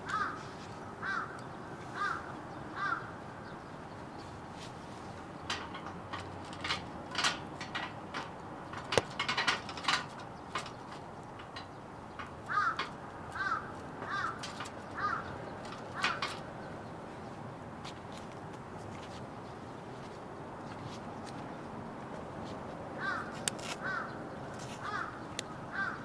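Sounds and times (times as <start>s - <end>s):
crow cawing: 0.0s - 3.2s, 12.5s - 15.3s, 15.9s - 16.4s, 23.0s - 24.2s, 24.8s - 26.0s.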